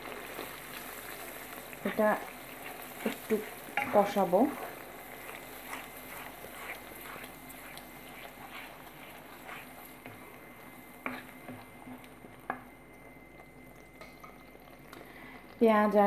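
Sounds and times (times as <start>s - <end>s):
paste sizzling in bubbling oil: 0.0s - 16.0s
wooden spatula scraping pan: 1.9s - 10.3s, 11.0s - 12.0s.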